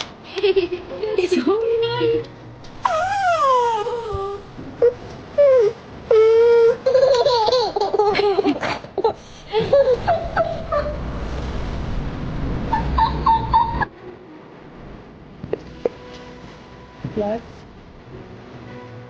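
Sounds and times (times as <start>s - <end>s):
low rumbling noise: 0.1s - 7.0s, 7.6s - 19.0s
child laughing and squealing: 2.8s - 4.5s, 6.4s - 11.1s, 12.7s - 13.9s.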